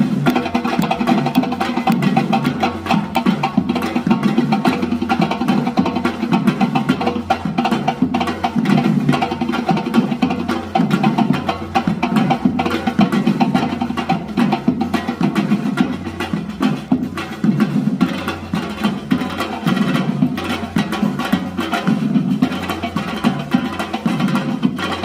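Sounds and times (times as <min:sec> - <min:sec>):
sharp wood-block-like hits: 0:00.0 - 0:04.0
drums: 0:00.0 - 0:25.0.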